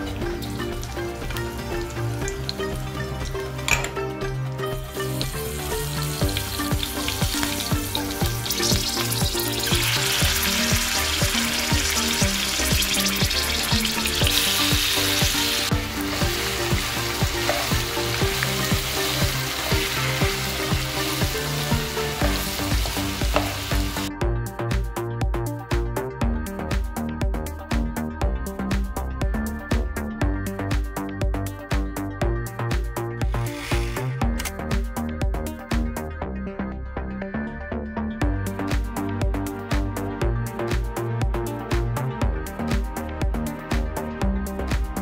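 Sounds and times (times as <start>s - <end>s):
background music: 0.0s - 45.0s
food sizzling in hot oil: 4.8s - 24.1s, 33.3s - 34.2s.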